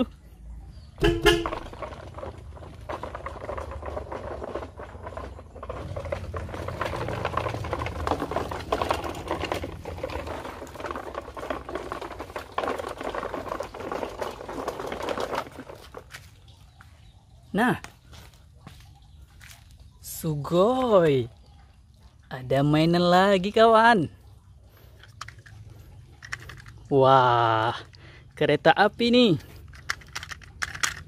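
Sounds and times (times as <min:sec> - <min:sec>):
toy truck wheels crackling on dirt: 0:00.9 - 0:31.0
plastic toy body rattling: 0:01.0 - 0:16.5, 0:24.8 - 0:28.0, 0:29.2 - 0:31.0.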